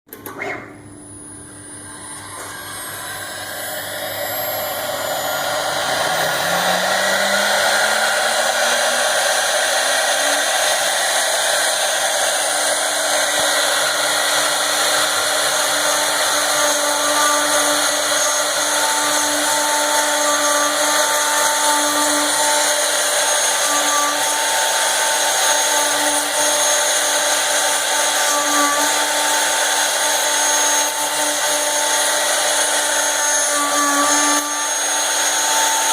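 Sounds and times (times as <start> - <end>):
cnc router spindle whirring: 0.3 - 35.9.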